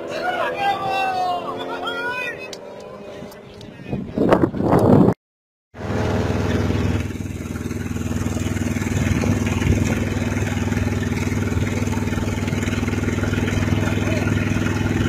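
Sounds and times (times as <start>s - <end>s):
car engine running: 5.8s - 15.0s.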